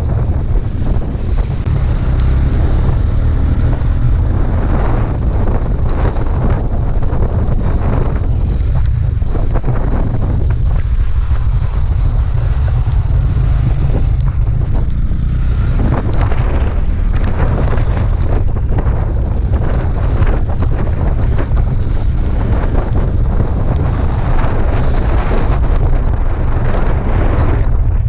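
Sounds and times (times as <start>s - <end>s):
road traffic noise: 0.0s - 28.0s
wind buffeting microphone: 0.0s - 28.0s
small clicks: 1.6s - 9.8s, 12.6s - 26.8s.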